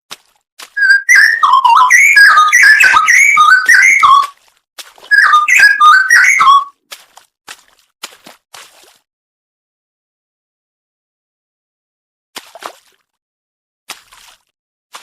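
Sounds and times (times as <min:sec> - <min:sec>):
bird singing whistled notes: 0:00.8 - 0:04.3, 0:05.1 - 0:06.7.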